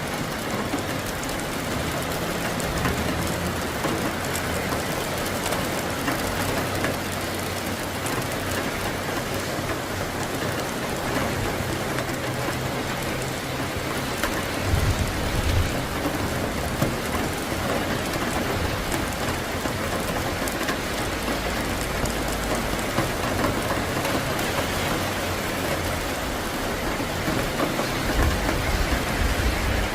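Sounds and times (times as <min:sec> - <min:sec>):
heavy rain falling: 0:00.0 - 0:29.9
low thunder rumbling: 0:14.6 - 0:17.4.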